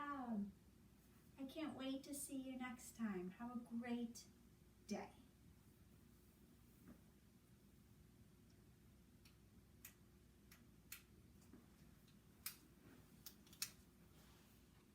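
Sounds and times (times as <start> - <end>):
faint sharp clicks: 9.2 - 12.6.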